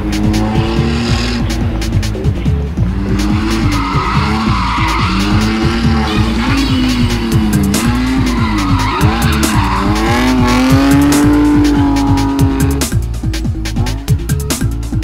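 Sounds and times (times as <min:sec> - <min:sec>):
car engine revving: 0:00.0 - 0:15.0
electronic music with steady beat: 0:00.0 - 0:15.0
tyres squealing: 0:03.0 - 0:12.9.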